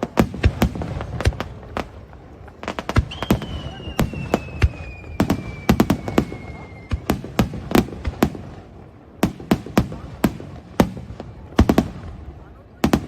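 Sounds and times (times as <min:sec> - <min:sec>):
fireworks bangs: 0:00.0 - 0:13.0
falling firework whistle: 0:02.9 - 0:07.4.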